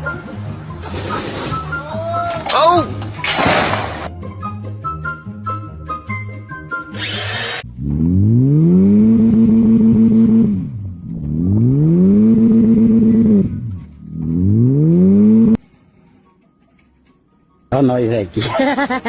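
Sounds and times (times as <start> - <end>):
motor revving: 6.9 - 15.6.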